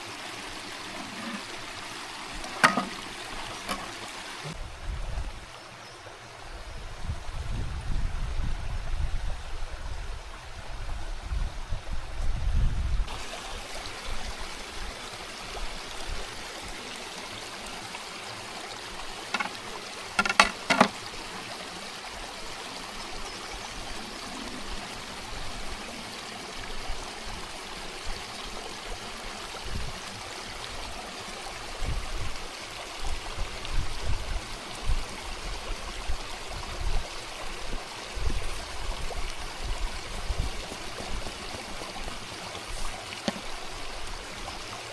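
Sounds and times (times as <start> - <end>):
stream water flowing: 0.0 - 7.6, 13.0 - 44.9
sharp clicks or knocks: 19.4 - 19.6, 20.2 - 20.9.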